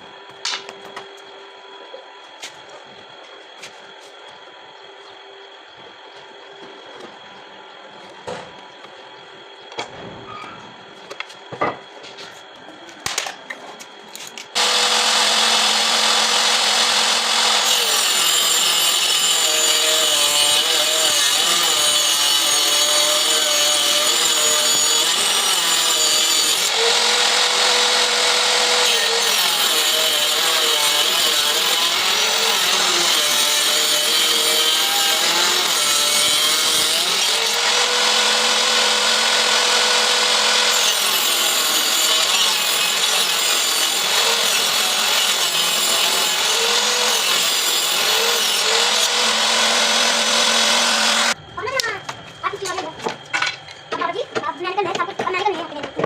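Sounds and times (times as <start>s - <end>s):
table saw cutting wood: 14.5s - 51.4s.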